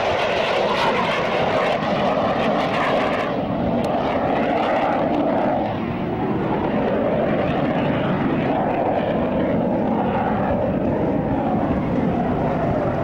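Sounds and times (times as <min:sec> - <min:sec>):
aircraft engine droning: 0:00.0 - 0:13.0.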